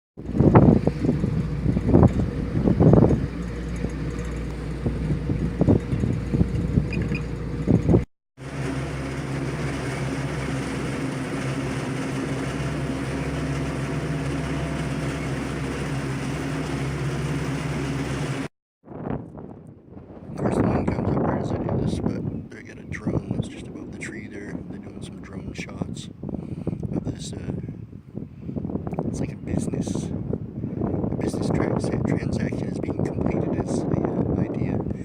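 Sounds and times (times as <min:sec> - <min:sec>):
engine humming: 0:00.2 - 0:18.5
wind buffeting microphone: 0:00.2 - 0:35.0.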